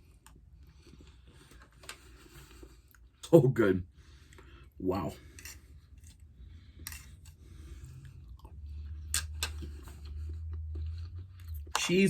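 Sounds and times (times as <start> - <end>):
person chewing: 5.2 - 11.9
wet mouth clicks: 8.4 - 11.8.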